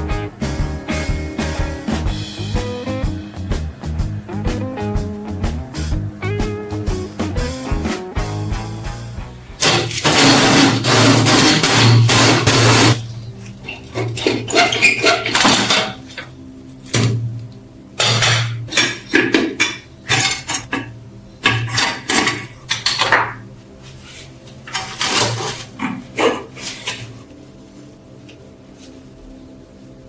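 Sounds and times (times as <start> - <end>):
metal parts clinking: 18.0 - 20.9.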